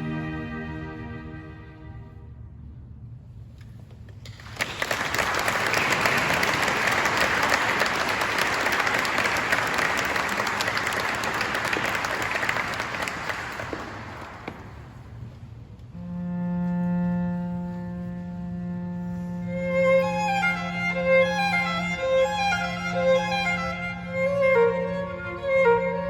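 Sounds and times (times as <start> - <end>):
audience applauding: 4.3 - 15.0.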